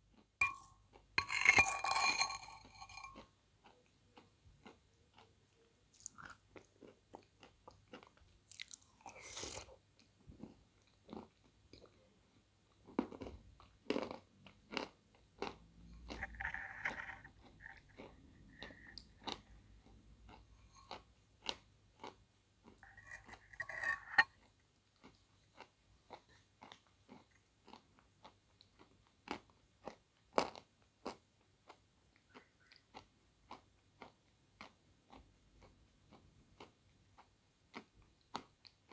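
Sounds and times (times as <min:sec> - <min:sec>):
slurping: 0:08.5 - 0:09.7, 0:16.1 - 0:19.6, 0:22.8 - 0:24.3
wet chewing: 0:13.9 - 0:38.9.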